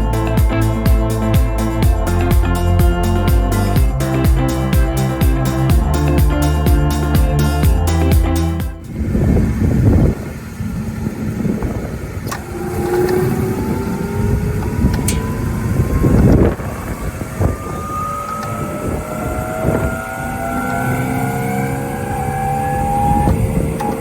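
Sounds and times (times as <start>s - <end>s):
thin motor whine: 8.9s - 24.0s
wood shredder grinding: 11.4s - 24.0s.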